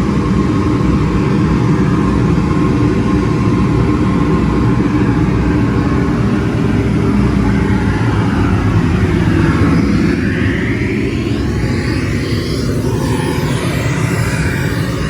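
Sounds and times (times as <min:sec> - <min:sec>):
rising pitch sweep: 0:06.4 - 0:15.0.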